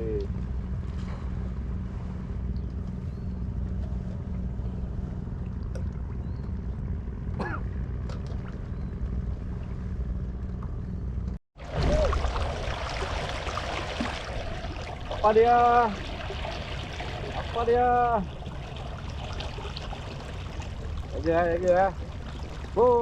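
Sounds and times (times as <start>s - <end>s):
water splashing and trickling: 8.0s - 9.9s, 11.6s - 23.0s.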